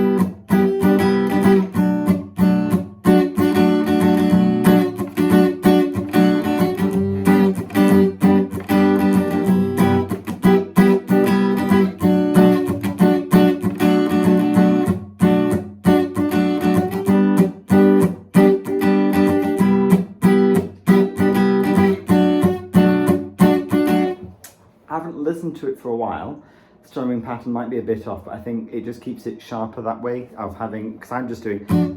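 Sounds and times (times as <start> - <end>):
acoustic guitar strumming: 0.0 - 24.4, 31.5 - 31.9.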